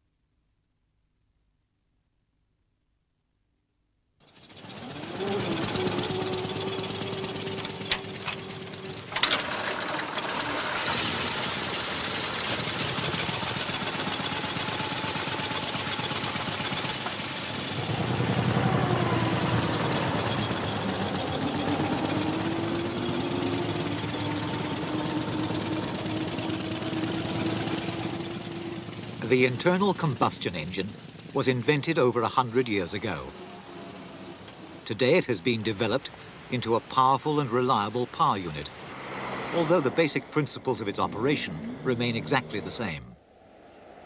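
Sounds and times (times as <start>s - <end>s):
car engine knocking: 4.3s - 9.9s, 11.4s - 33.8s.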